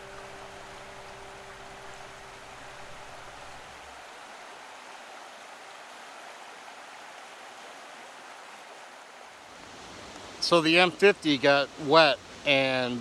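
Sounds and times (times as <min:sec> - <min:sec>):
waterfall rushing: 0:00.0 - 0:06.0
falling rain: 0:00.0 - 0:13.0.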